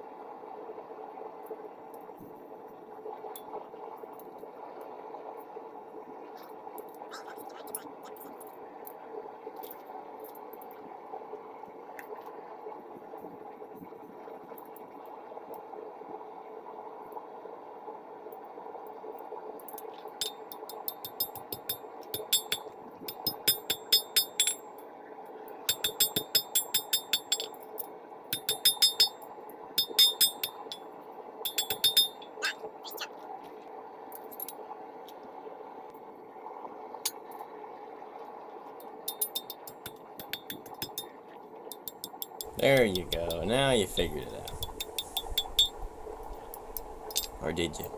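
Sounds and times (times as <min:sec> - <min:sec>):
steady background hum: 0:00.0 - 0:47.9
metal-on-metal clinks: 0:31.5 - 0:32.3, 0:47.1 - 0:47.4.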